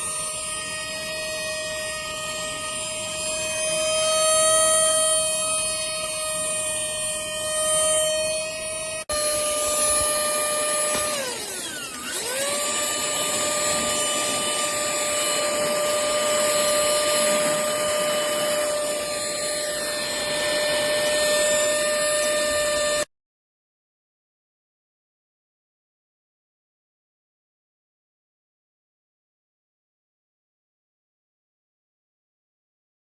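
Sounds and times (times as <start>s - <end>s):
handheld vacuum motor whine: 0.0s - 23.1s.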